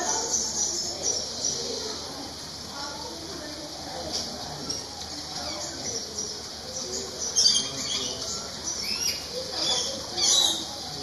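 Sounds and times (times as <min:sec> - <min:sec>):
birds chirping and squawking: 0:00.0 - 0:02.2, 0:04.5 - 0:11.0.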